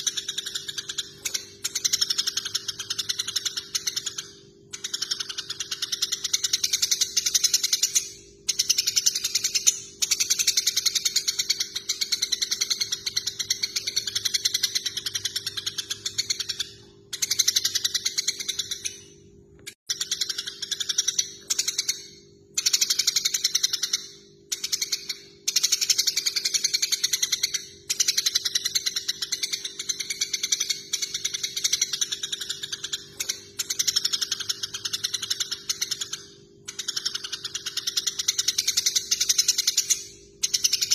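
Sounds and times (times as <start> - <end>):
sparrows rattling chatter calls: 0.0 - 19.0, 22.6 - 40.9.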